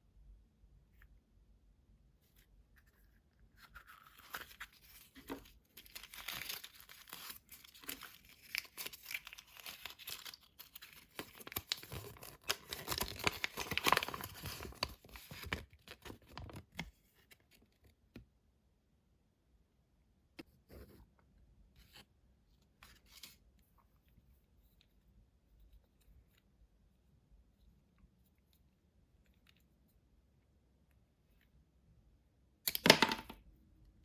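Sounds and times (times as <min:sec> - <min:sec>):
wrapper tearing and crinkling: 0:03.9 - 0:16.3.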